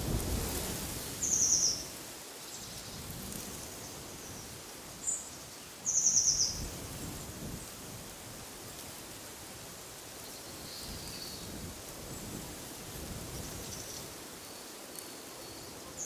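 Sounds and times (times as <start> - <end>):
wind rumble: 0.0 - 1.3.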